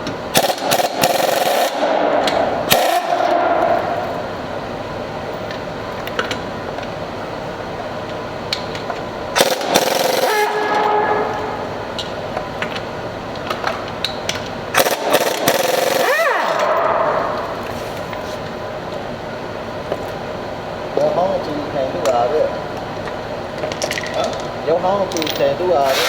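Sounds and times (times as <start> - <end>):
power tool bursts: 0.3 - 4.1, 9.4 - 11.7, 14.7 - 17.7, 25.8 - 26.0
sharp clicks and clanks: 8.5 - 11.0, 12.0 - 16.8.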